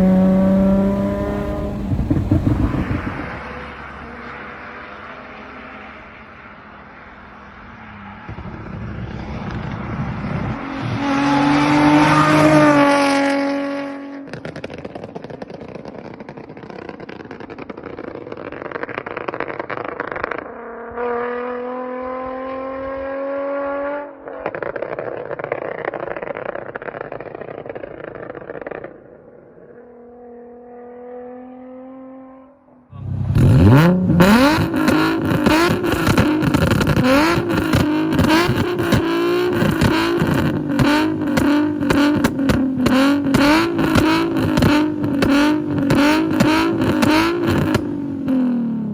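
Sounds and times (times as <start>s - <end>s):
exhaust popping: 0.0s - 3.7s, 8.3s - 20.6s, 32.9s - 48.9s
car engine revving: 0.0s - 25.7s, 29.7s - 48.9s.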